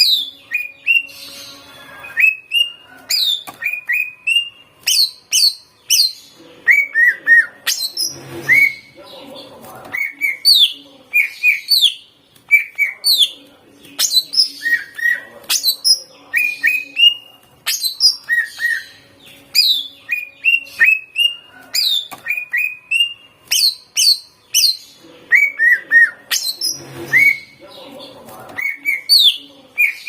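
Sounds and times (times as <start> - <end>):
bird singing whistles and chirps: 0.0 - 9.0, 14.0 - 27.6.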